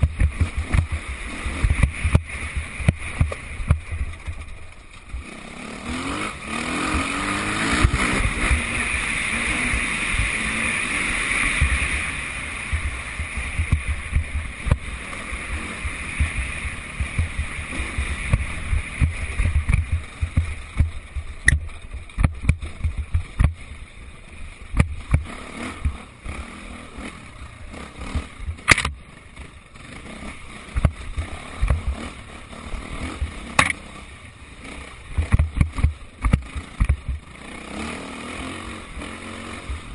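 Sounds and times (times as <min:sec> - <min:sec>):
thumps and rumble on microphone: 0:00.0 - 0:05.2, 0:11.6 - 0:11.9, 0:12.7 - 0:23.7, 0:24.7 - 0:26.1, 0:28.1 - 0:29.0, 0:30.7 - 0:32.1, 0:35.1 - 0:37.3
motocross bike engines revving: 0:00.0 - 0:39.9
sharp clicks: 0:18.3 - 0:23.6, 0:28.4 - 0:29.0, 0:33.5 - 0:33.8.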